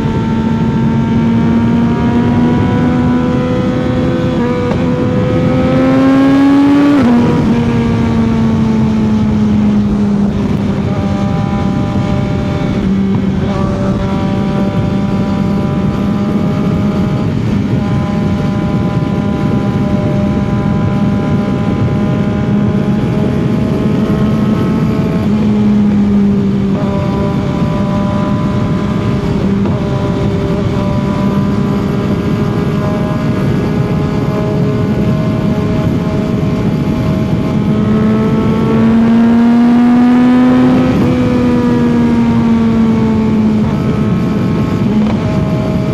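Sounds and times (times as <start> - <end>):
motorcycle engine cruising: 0.0 - 45.9
wind rushing: 0.0 - 45.9.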